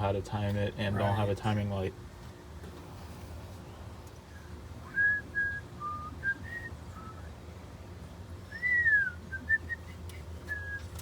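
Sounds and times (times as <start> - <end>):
person whistling: 4.9 - 7.3, 8.5 - 11.0.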